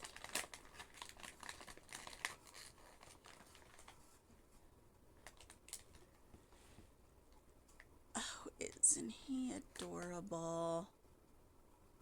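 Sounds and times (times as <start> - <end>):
plastic packaging crinkling: 0.0 - 4.1, 5.2 - 6.2.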